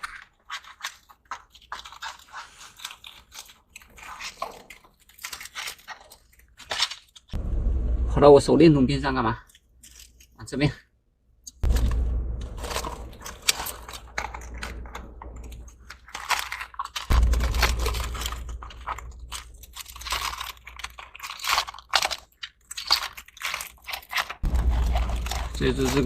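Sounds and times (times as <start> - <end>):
shells and rocks crunching: 0.0 - 7.4, 9.4 - 10.4, 11.6 - 26.0
low rumble: 7.4 - 9.0, 11.6 - 16.2, 17.1 - 20.4, 24.4 - 26.0.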